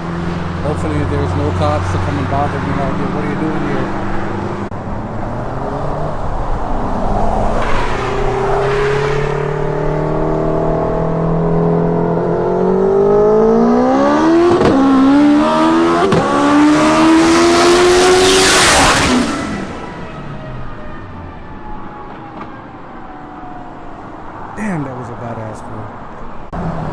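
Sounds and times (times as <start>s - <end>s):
car engine accelerating: 0.0s - 20.8s.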